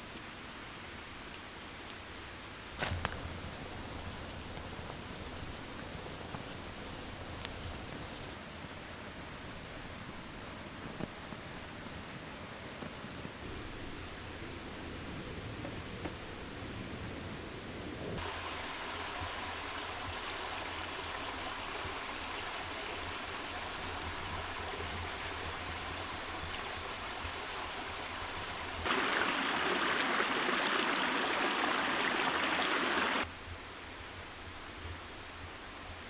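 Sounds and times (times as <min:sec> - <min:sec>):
rushing water: 0:02.7 - 0:08.4, 0:18.2 - 0:33.3.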